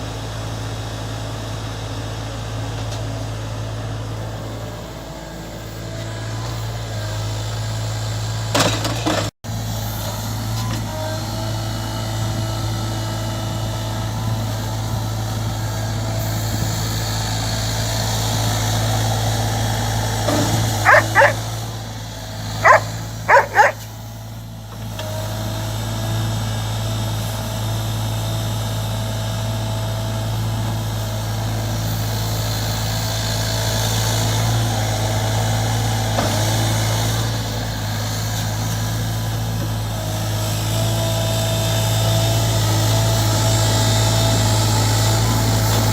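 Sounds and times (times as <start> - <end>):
dog barking: 20.8 - 21.4, 22.6 - 23.9.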